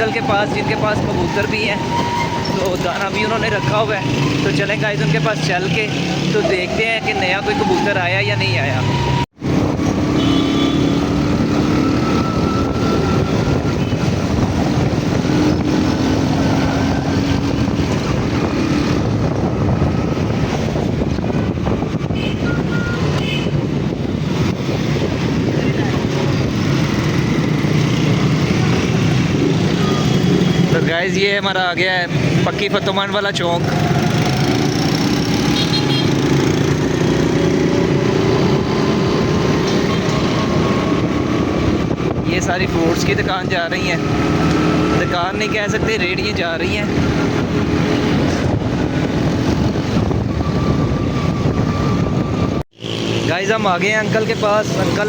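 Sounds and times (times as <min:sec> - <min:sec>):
engine and traffic rumble: 0:00.0 - 0:55.0
wind buffeting microphone: 0:08.8 - 0:10.2, 0:10.8 - 0:30.8, 0:33.6 - 0:53.2.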